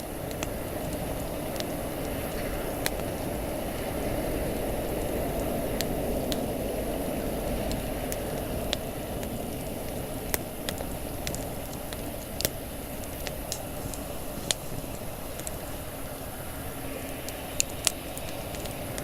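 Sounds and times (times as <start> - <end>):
campfire crackling: 0.0 - 19.0
steady low rush: 0.0 - 19.0.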